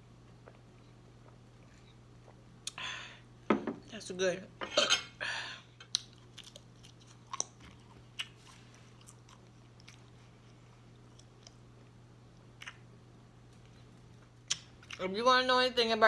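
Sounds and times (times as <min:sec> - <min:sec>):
faint low hum: 0:00.0 - 0:16.0
person chewing food: 0:00.3 - 0:02.8, 0:05.8 - 0:15.0.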